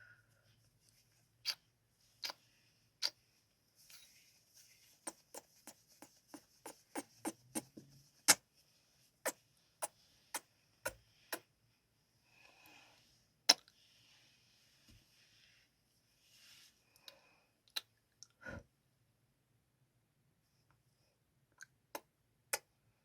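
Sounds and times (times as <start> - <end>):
soft breathy noise: 2.1 - 17.7.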